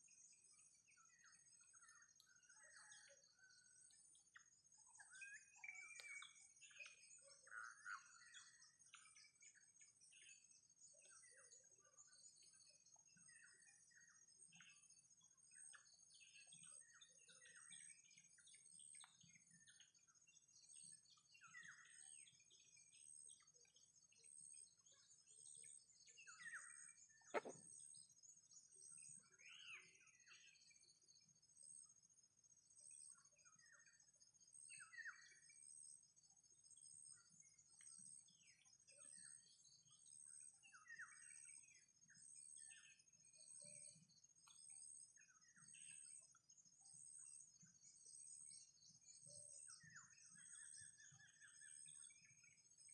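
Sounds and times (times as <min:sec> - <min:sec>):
bird chirps and twitters: 0:00.0 - 0:31.0, 0:32.9 - 0:52.9.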